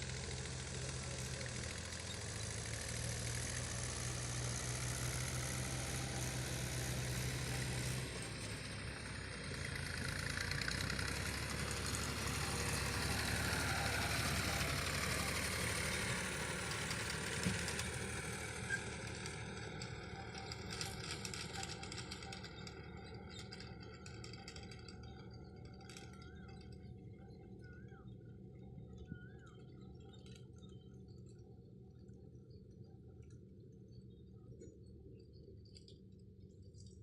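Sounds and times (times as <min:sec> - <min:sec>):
tractor engine running: 0:00.0 - 0:27.7.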